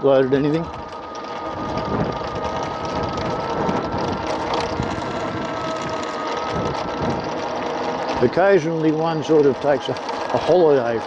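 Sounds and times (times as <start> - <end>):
electric motor high whine: 0.0 - 11.0
wind rushing over microphone: 0.6 - 7.6.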